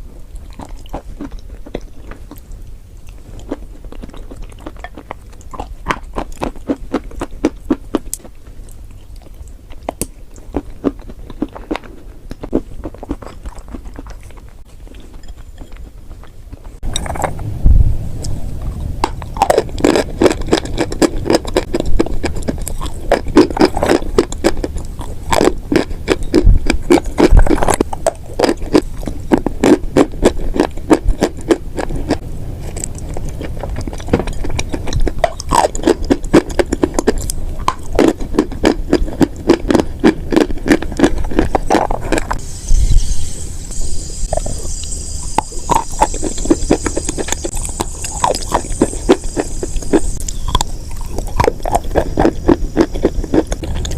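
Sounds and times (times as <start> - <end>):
crunchy chewing: 0.0 - 17.5, 18.2 - 53.9
faint high hiss: 17.2 - 19.4, 42.4 - 51.3.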